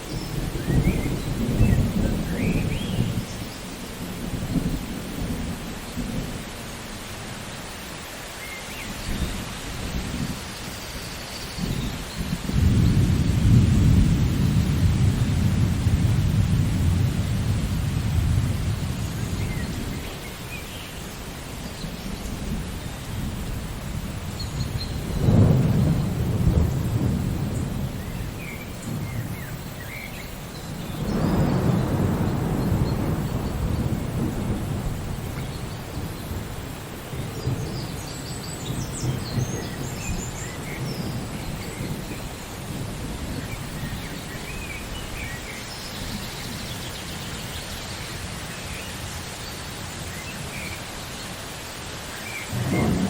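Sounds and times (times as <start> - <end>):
steady rain: 0.0 - 53.0
rolling thunder: 0.1 - 6.4, 11.6 - 20.2, 21.6 - 30.0, 30.6 - 48.8, 52.5 - 53.0.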